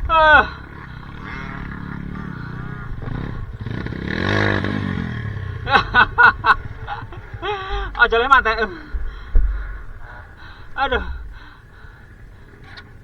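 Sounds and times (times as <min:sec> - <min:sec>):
motorcycle engine revving: 0:00.0 - 0:13.0
man shouting: 0:00.1 - 0:00.7, 0:07.9 - 0:08.9, 0:10.8 - 0:11.2.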